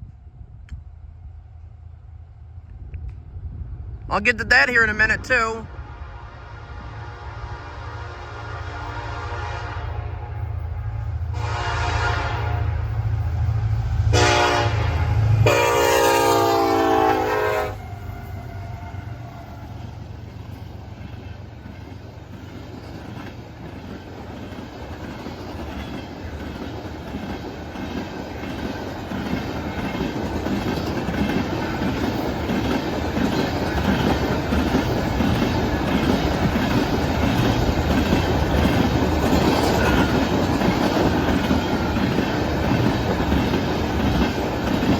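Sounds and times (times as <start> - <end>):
locomotive horn blasts: 6.0 - 12.9, 14.1 - 19.7
train wheels clacking over rail joints: 20.5 - 44.9.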